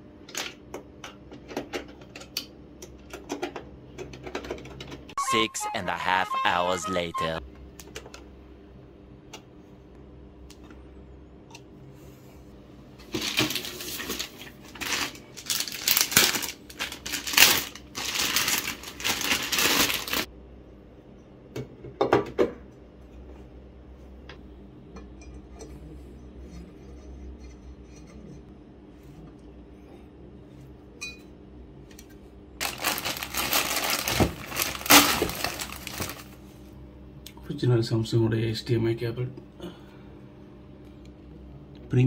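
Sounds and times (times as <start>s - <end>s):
packaging rustling: 13.0s - 20.3s, 32.6s - 36.4s.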